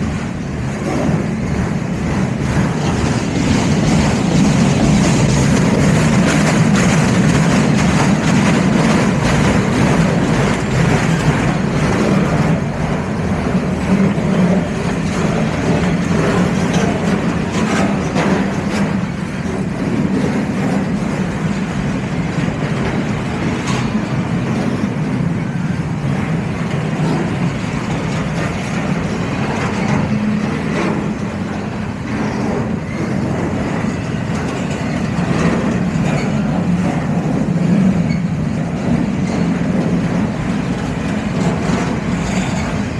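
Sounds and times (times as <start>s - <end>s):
train wheels rumbling on rail: 0.0s - 42.9s
wheels clicking over rail joints: 0.0s - 42.9s.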